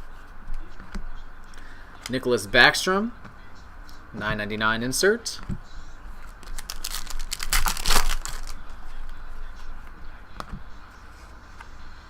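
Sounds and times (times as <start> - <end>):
foil wrapper crinkling and tearing: 6.2 - 8.8.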